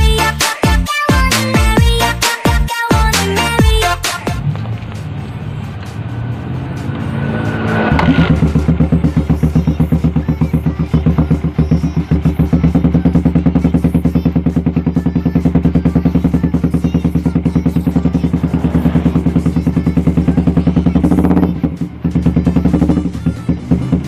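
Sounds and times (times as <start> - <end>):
background music: 0.0 - 24.0
motorcycle engine idling: 7.9 - 24.0.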